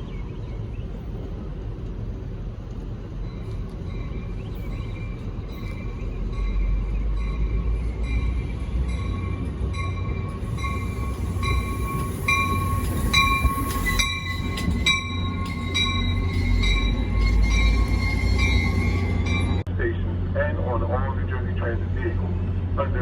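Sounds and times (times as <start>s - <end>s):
train rumbling: 0.0s - 23.0s
locomotive bell ringing: 3.2s - 19.7s.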